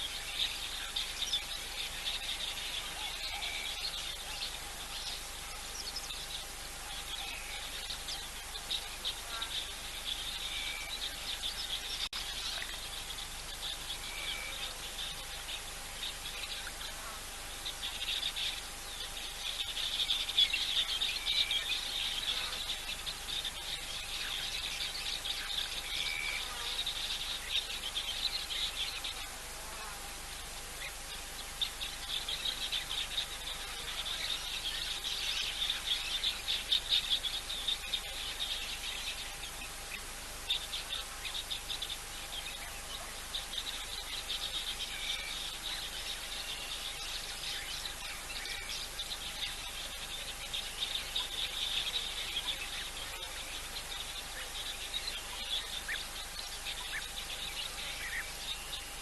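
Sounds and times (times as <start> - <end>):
faint steady hum: 0.0 - 59.0
insects trilling: 0.0 - 59.0.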